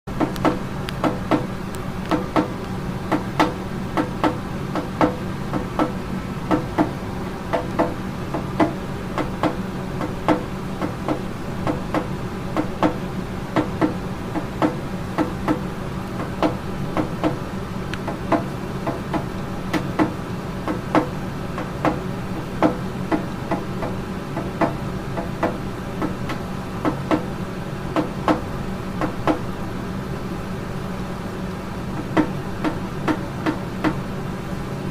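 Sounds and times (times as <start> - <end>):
steady low hum: 0.1 - 34.9
bird beak knocking: 3.1 - 13.0, 16.2 - 17.4.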